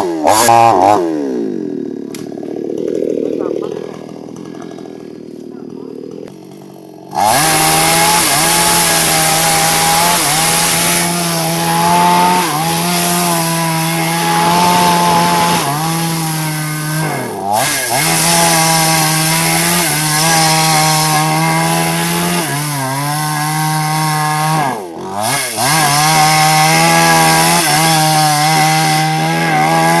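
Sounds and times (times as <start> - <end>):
chainsaw cutting log: 0.0 - 30.0.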